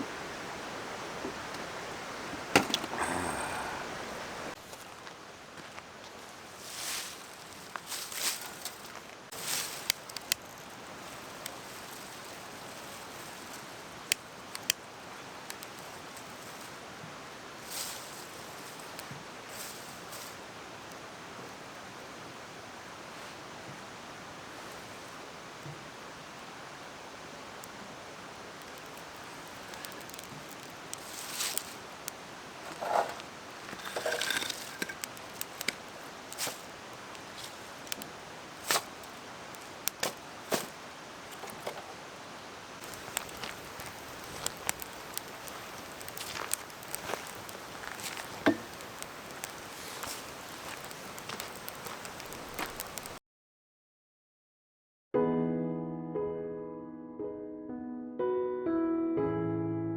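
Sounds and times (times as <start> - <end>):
mountain stream rushing: 0.0 - 4.6
rustle: 0.0 - 53.2
rustles and clicks: 32.6 - 42.0, 42.8 - 53.2.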